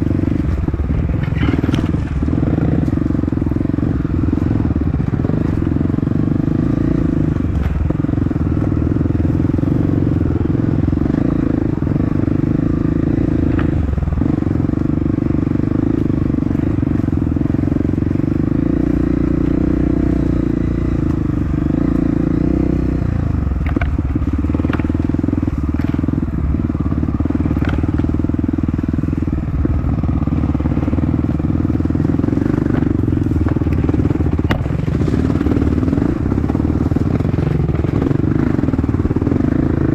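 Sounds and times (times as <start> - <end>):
motorcycle engine under throttle: 0.0 - 39.9
sharp clicks and knocks: 23.6 - 25.1, 27.5 - 28.1.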